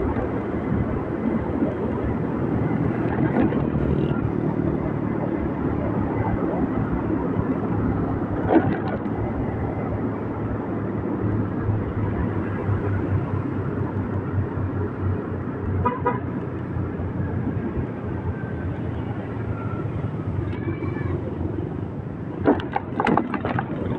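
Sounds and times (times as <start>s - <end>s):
motorbike engine and road noise: 0.0s - 23.9s
vehicle horn beep: 15.8s - 16.3s.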